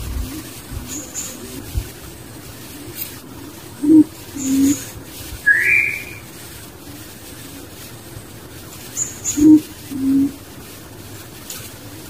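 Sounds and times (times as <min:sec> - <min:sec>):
low hooting bird notes: 0:02.3 - 0:07.0, 0:08.9 - 0:10.5
faint high bird chirps: 0:03.8 - 0:04.8, 0:05.4 - 0:06.3, 0:09.0 - 0:10.3
rising bird whistle: 0:03.8 - 0:04.8, 0:05.4 - 0:06.3.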